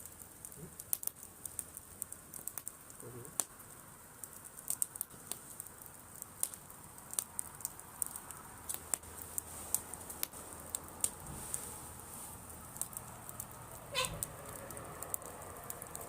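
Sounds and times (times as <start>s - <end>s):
bonfire crackling and popping: 0.0s - 16.0s
faint steady hiss: 0.0s - 16.0s.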